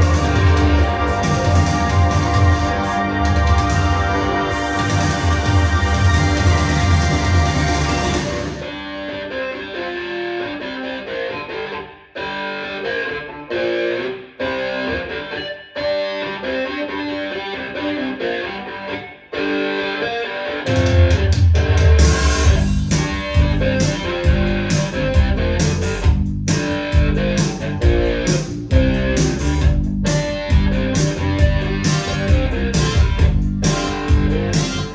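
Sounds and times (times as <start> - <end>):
heavy bass: 0.0 - 8.8, 20.7 - 34.9
guitar-led band music: 0.0 - 34.9.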